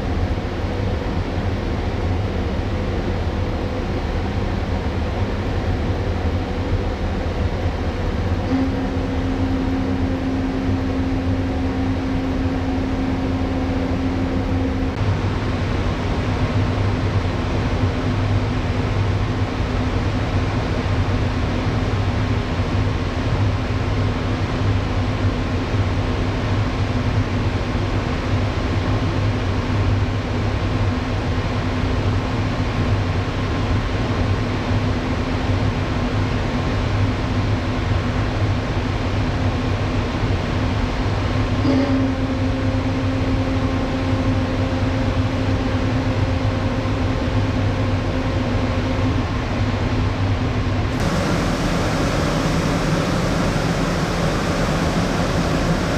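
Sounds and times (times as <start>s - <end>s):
ship machinery hum: 0.0s - 15.0s, 41.6s - 55.9s.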